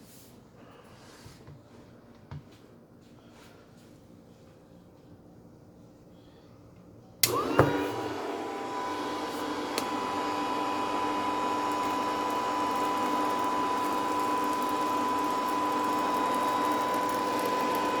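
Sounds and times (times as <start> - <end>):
vacuum cleaner motor whining: 7.2 - 18.0.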